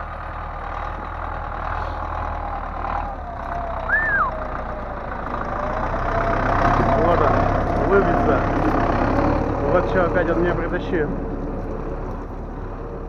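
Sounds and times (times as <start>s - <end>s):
diesel engine idling: 0.0s - 13.0s
short high squeal: 3.9s - 4.4s.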